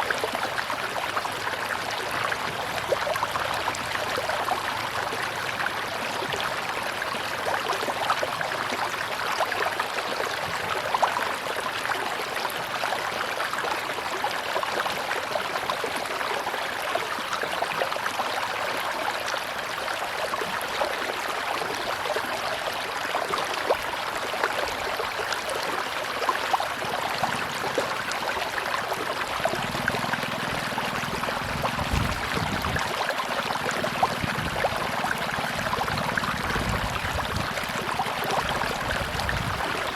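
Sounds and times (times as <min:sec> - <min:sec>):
river water rushing: 0:00.0 - 0:39.9
water splashes: 0:20.2 - 0:39.9.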